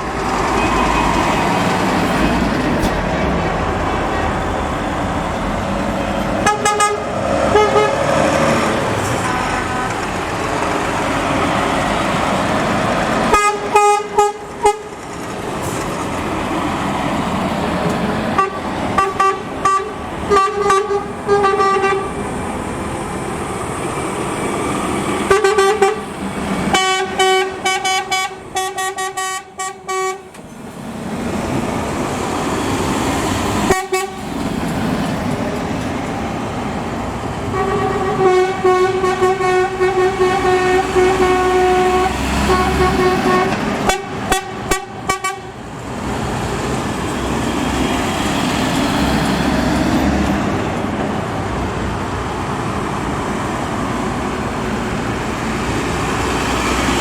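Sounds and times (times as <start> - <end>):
diesel trucks rumbling past: 0.0 - 57.0
truck horn tooting: 0.5 - 1.6, 6.4 - 10.5, 13.2 - 15.0, 18.3 - 22.2, 25.2 - 30.4, 33.6 - 34.4, 37.4 - 45.6.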